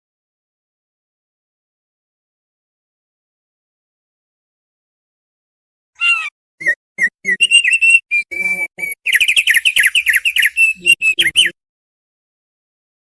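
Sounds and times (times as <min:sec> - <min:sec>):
bird chirping song: 0:06.0 - 0:11.6.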